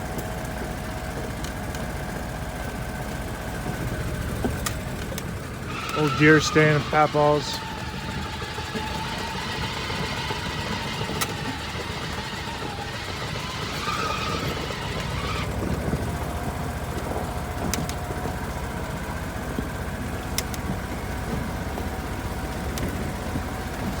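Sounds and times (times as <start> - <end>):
sharp clicks and rattles: 0.0 - 24.0
utility vehicle engine running: 0.0 - 24.0.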